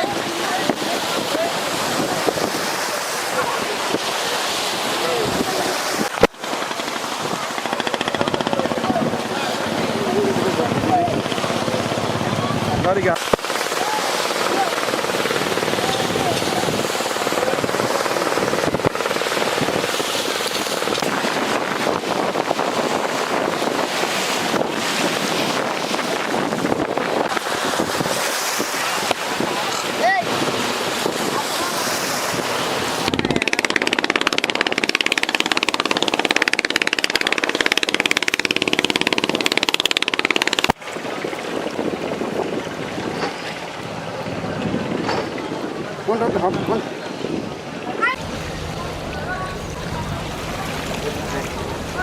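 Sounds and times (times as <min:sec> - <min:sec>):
wind noise on microphone: 0:00.0 - 0:52.0
engine chugging: 0:48.2 - 0:52.0.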